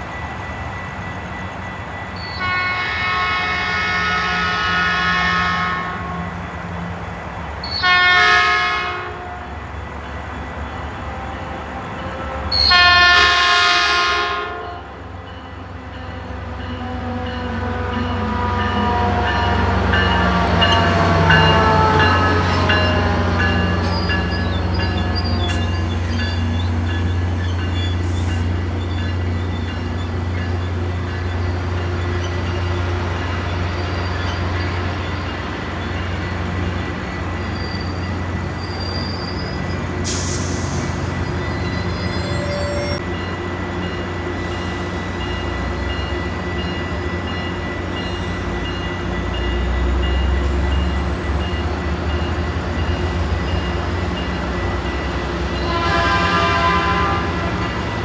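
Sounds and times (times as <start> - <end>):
train rumble: 0.0 - 58.0
train horn: 2.4 - 6.3, 7.7 - 9.5, 12.3 - 15.0, 16.1 - 25.2, 55.5 - 57.8
wheels squealing on rail: 16.2 - 58.0.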